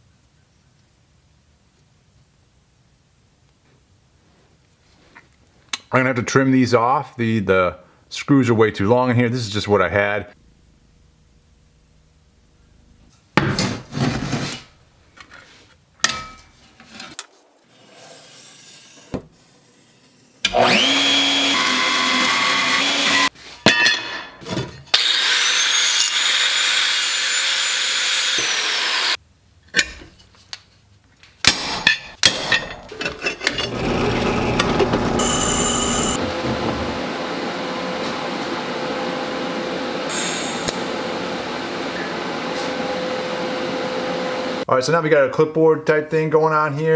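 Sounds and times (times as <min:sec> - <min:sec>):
power tool cutting metal: 0:20.5 - 0:23.3, 0:24.9 - 0:29.2, 0:33.5 - 0:37.9, 0:40.1 - 0:41.0.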